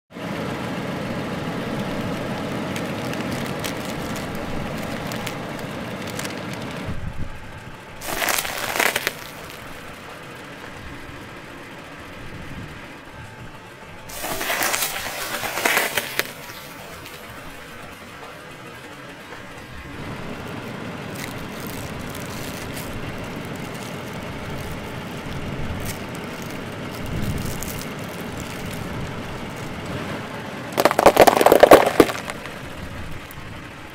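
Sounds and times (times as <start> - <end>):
tyre crushing foil packaging: 2.5 - 6.6, 8.0 - 9.8, 14.1 - 17.3, 21.1 - 29.7, 30.8 - 32.6.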